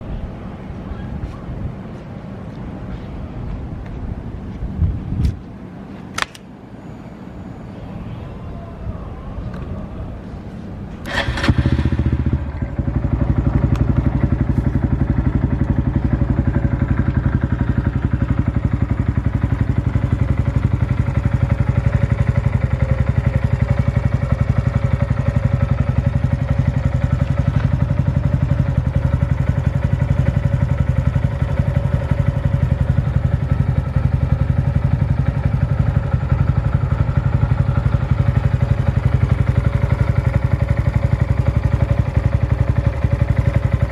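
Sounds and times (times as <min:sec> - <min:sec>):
motorcycle engine idling: 0:09.9 - 0:43.9.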